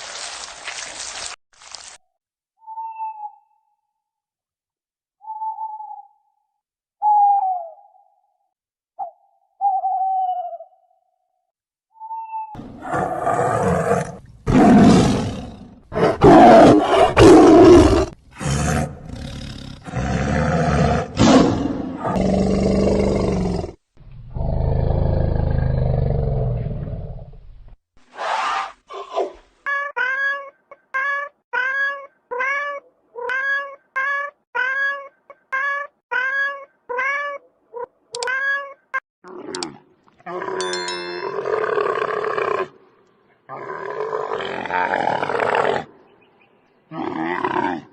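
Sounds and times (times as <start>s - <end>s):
harsh roar-like animal calls: 12.6s - 27.3s, 43.5s - 46.0s, 46.9s - 47.9s.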